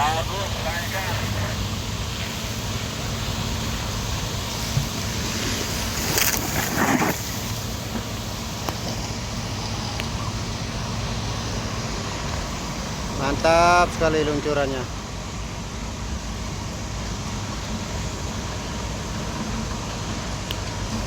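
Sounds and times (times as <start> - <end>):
rushing burst: 0.0 - 9.5
low engine hum: 0.0 - 21.0.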